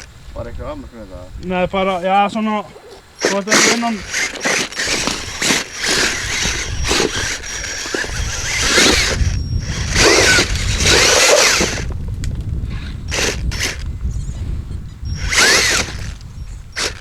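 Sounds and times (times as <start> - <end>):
model car motor whining: 3.2 - 11.9, 12.8 - 13.9, 15.1 - 17.0.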